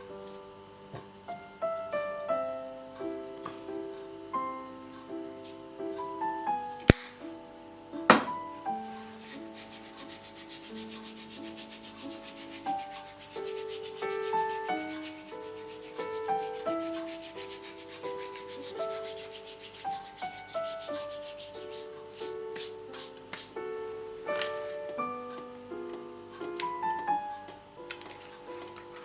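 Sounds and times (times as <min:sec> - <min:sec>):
soft piano music: 0:00.0 - 0:29.0
quick scraping strokes: 0:09.2 - 0:23.6.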